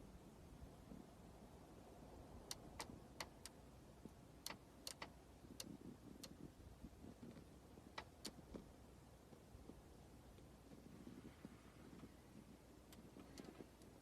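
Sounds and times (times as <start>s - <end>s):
faint sharp ticks: 4.4s - 6.4s.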